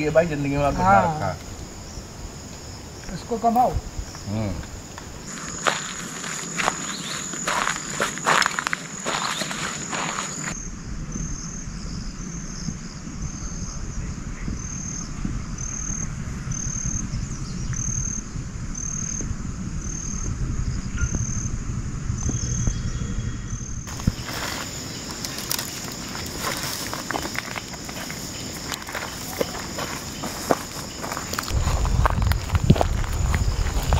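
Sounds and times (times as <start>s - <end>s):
insects steady high buzz: 0.0s - 33.9s
rustling and footsteps: 4.1s - 10.6s, 23.9s - 33.9s
insect short high chirp: 5.3s - 27.2s
low steady rush: 10.6s - 28.6s.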